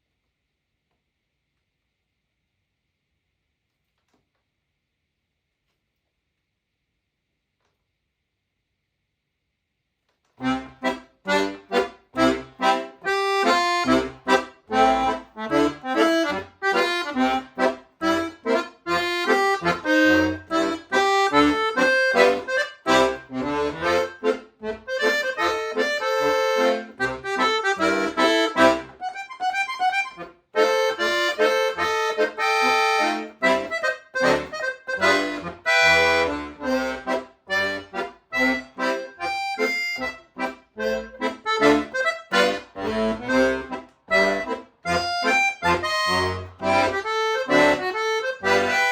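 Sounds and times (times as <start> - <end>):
solo accordion playing: 10.4 - 48.9.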